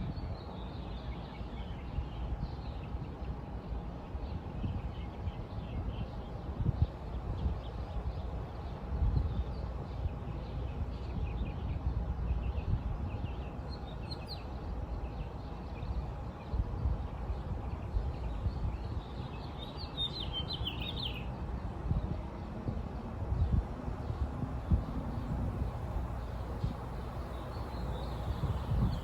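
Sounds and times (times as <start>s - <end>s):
small birds chirping: 17.3s - 21.3s.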